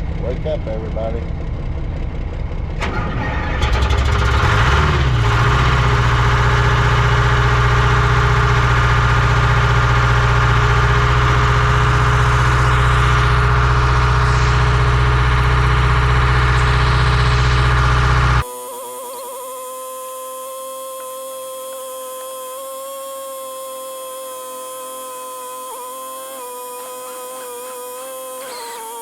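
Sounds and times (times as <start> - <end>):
vehicle engine idling: 0.0 - 18.4.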